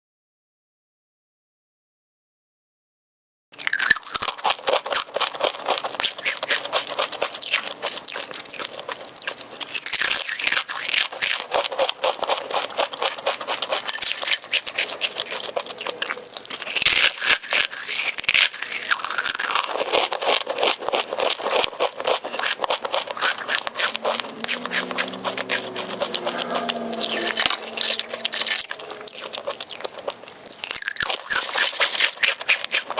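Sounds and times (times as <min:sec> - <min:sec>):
crunching and chewing snacks: 0:03.6 - 0:32.9.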